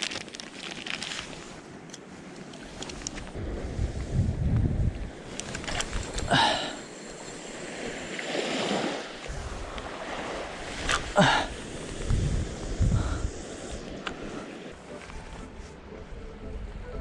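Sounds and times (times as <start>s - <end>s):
small waves washing on beach: 0.0s - 15.2s
wind buffeting microphone: 2.7s - 8.1s, 8.8s - 14.4s.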